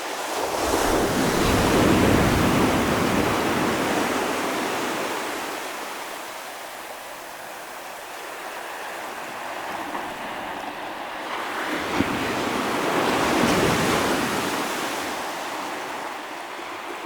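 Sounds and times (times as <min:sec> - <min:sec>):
ocean waves breaking on shore: 0:00.0 - 0:17.0.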